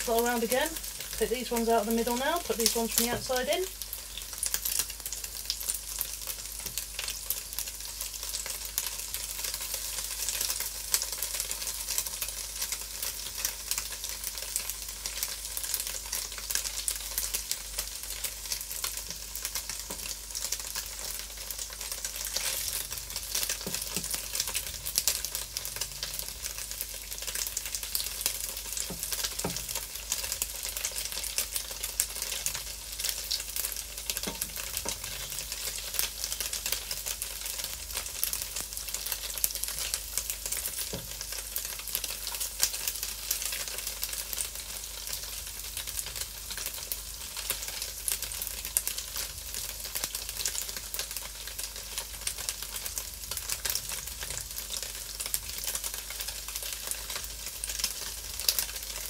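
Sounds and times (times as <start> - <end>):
tofu sizzling in frying pan: 0.0 - 59.0
wooden spatula knocking on pan: 3.1 - 3.3, 23.6 - 24.2, 28.8 - 29.7, 34.2 - 35.1.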